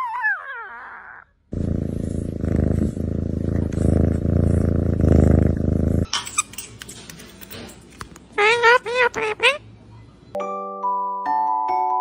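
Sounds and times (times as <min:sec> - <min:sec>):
kitten purring: 0:01.5 - 0:06.1.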